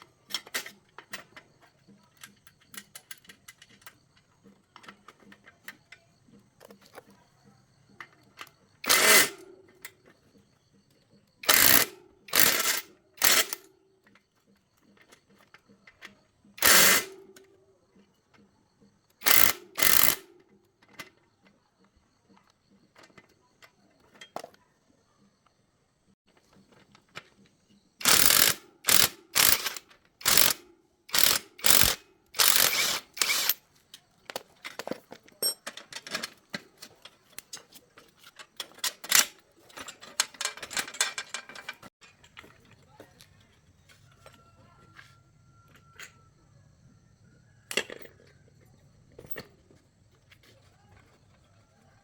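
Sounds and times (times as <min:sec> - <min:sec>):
rapid ratchet clicking: 0:08.8 - 0:09.4, 0:11.4 - 0:13.6, 0:16.6 - 0:17.2, 0:19.2 - 0:20.3, 0:28.0 - 0:33.6
tool strokes on bicycle parts: 0:28.0 - 0:33.6.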